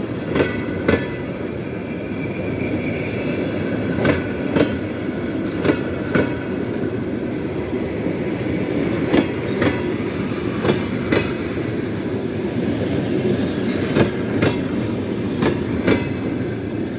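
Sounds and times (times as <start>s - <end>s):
train wheels clacking: 0.0s - 1.7s, 2.3s - 7.4s, 8.1s - 11.8s, 12.8s - 16.6s
train rolling rumble: 0.0s - 16.9s.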